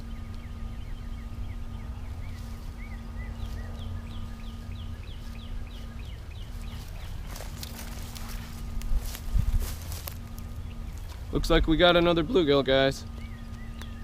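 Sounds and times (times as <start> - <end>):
bird singing whistled notes: 0.0 - 7.4, 13.0 - 14.0
low rumble: 0.0 - 14.0
steady hum: 0.0 - 14.0.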